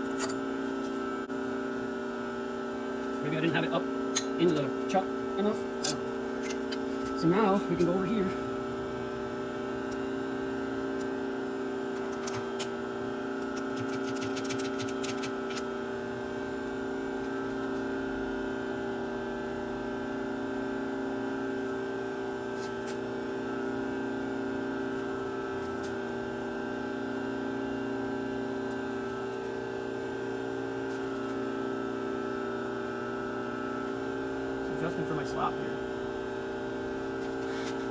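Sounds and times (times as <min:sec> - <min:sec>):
milling machine motor humming: 0:00.0 - 0:18.4.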